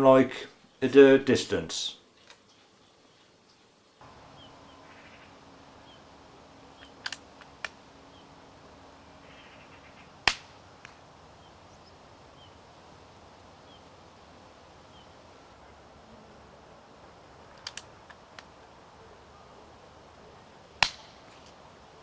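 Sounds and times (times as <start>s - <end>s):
light clicks: 5.2s - 8.3s, 17.4s - 18.8s
suppressed rifle shot: 20.8s - 21.6s.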